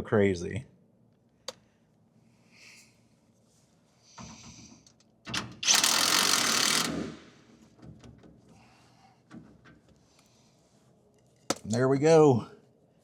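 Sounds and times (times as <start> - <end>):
rapid mechanical rattle of tool: 5.3 - 7.3.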